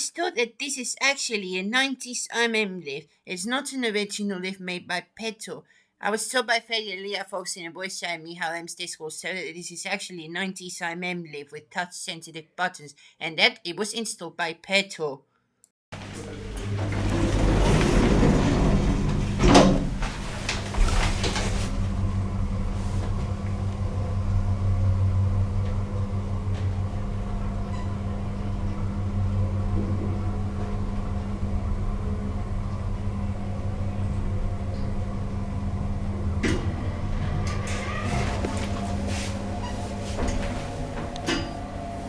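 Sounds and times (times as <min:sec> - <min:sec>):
lift mechanical hum: 0:15.9 - 0:42.0
lift doors sliding and clunking: 0:16.0 - 0:23.9, 0:33.6 - 0:42.0
lift click: 0:36.2 - 0:41.8.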